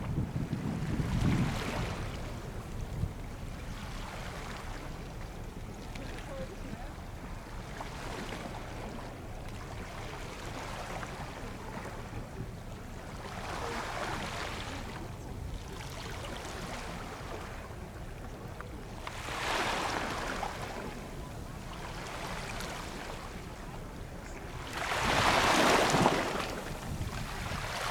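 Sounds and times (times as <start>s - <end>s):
wind noise: 0.0s - 3.2s, 26.6s - 27.9s
waves washing against shore: 18.8s - 27.9s.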